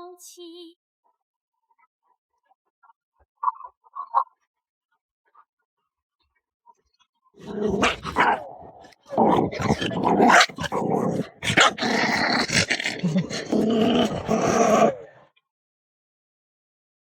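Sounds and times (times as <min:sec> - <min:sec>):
puppies growling and yapping: 0:07.4 - 0:15.2.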